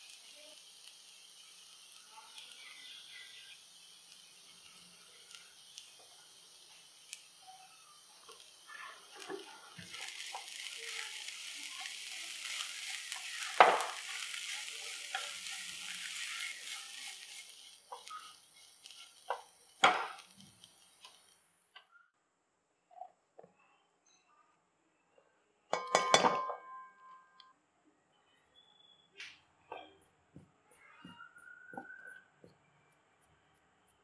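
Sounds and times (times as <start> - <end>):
spatula stirring in pan: 0.0 - 21.4
shallots sizzling in oil: 0.0 - 21.6.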